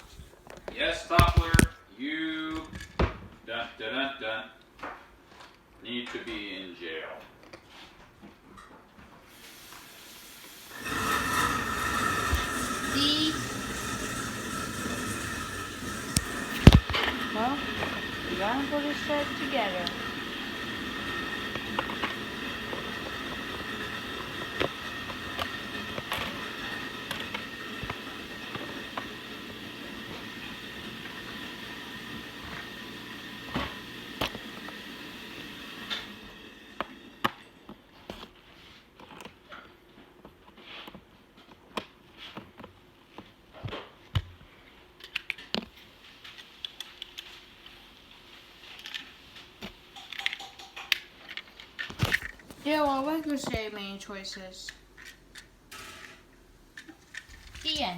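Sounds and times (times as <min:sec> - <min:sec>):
steady background hum: 0:10.4 - 0:37.9.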